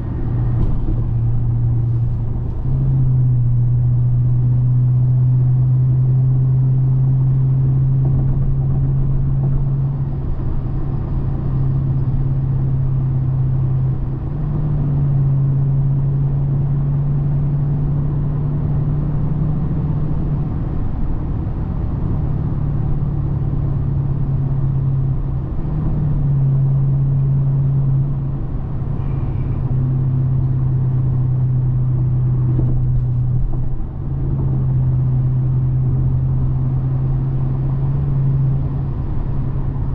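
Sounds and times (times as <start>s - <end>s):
car engine droning: 0.0s - 39.9s
road noise: 0.0s - 39.9s.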